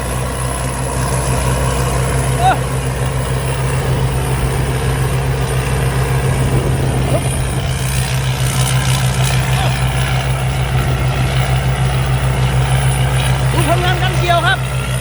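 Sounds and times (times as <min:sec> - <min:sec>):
diesel engine droning: 0:00.0 - 0:15.0
high machinery whine: 0:00.0 - 0:15.0.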